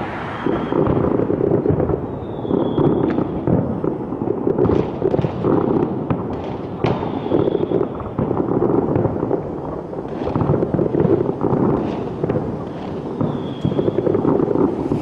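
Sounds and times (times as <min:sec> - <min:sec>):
faint high firework whistle: 0:00.0 - 0:03.4, 0:06.8 - 0:08.2, 0:12.7 - 0:15.0
fireworks crackling and banging: 0:00.0 - 0:15.0.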